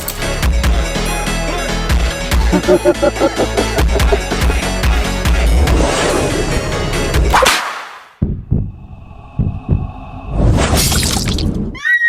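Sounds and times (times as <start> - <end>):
whoosh sound effect: 2.5 - 4.5
low thumps: 8.2 - 9.9.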